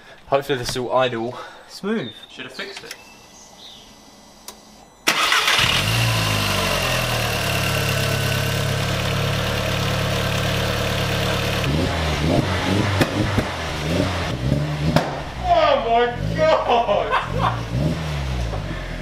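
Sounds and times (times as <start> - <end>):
car engine starting and idling: 3.9 - 19.0.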